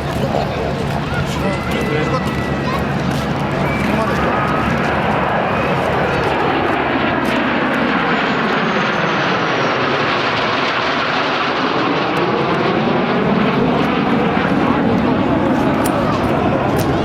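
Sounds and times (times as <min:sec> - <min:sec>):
plane flying past: 0:00.0 - 0:17.0.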